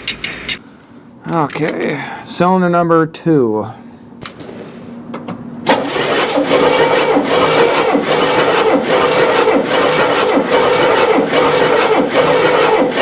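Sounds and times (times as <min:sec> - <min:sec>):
engine cranking on starter: 0:05.2 - 0:13.0.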